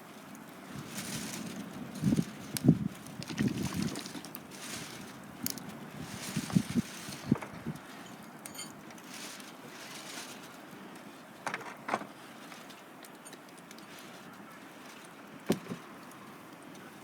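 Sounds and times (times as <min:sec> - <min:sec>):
wood popping and cracking: 0:02.1 - 0:04.5.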